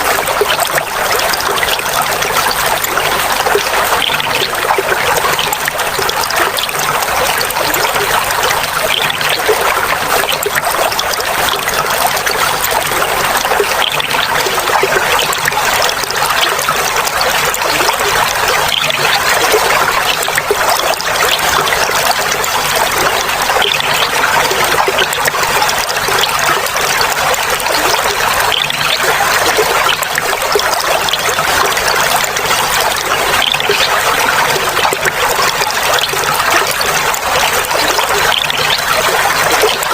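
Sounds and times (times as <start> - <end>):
water trickling and babbling: 0.0 - 39.9.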